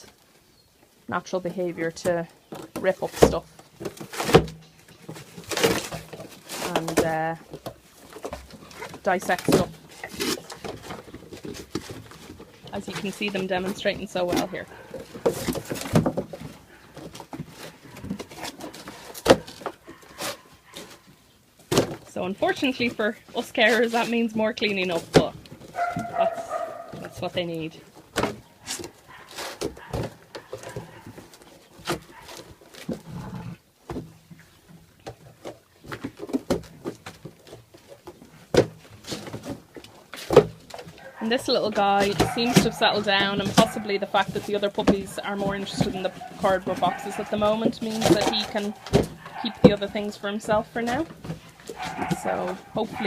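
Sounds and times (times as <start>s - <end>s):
puppies tearing cardboard: 1.9s - 33.3s, 35.0s - 53.0s
puppies growling: 14.4s - 15.7s, 40.9s - 44.6s, 45.2s - 50.1s.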